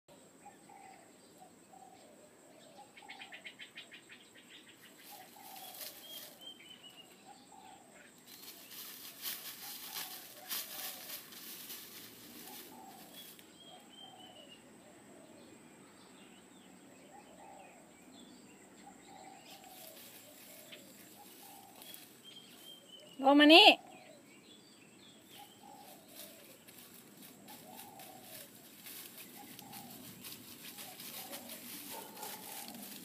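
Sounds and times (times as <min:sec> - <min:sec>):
rustling in dry grass: 0:04.8 - 0:07.1, 0:08.2 - 0:13.8, 0:19.4 - 0:22.9, 0:25.3 - 0:33.0.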